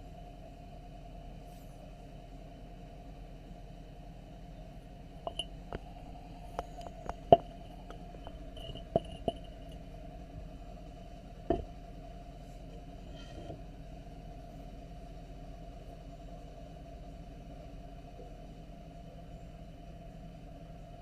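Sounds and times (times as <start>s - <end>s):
steady low hum: 0.0s - 21.0s
light clicks and taps: 5.3s - 5.9s.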